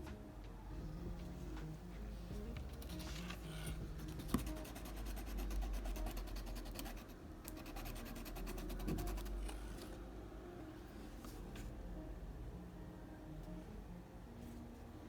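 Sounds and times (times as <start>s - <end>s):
pencil scratching on paper: 2.8s - 9.6s.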